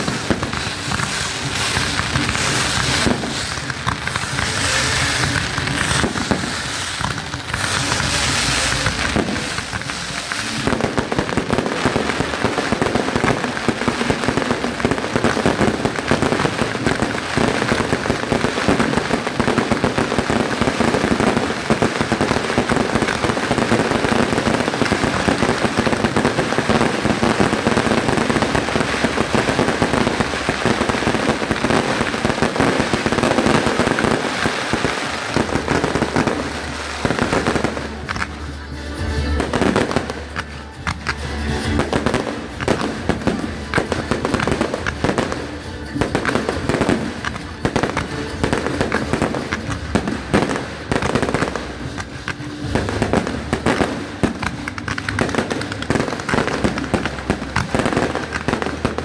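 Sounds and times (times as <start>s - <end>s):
fireworks popping and crackling: 0.0s - 59.0s.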